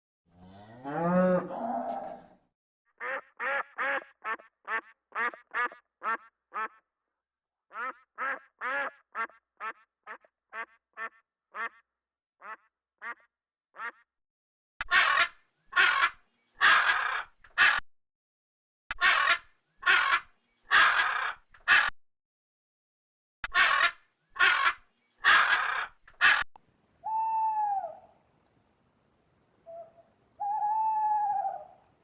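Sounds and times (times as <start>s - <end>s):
duck quacking: 3.0s - 6.8s, 7.7s - 11.8s, 12.4s - 14.0s, 14.8s - 17.8s, 18.9s - 21.9s, 23.4s - 26.4s
animal giving harsh calls: 14.9s - 17.8s, 18.9s - 21.9s, 23.5s - 26.4s.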